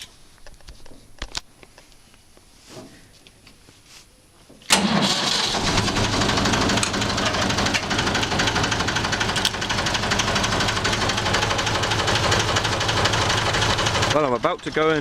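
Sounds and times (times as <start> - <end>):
tractor engine starting and idling: 4.7 - 15.0.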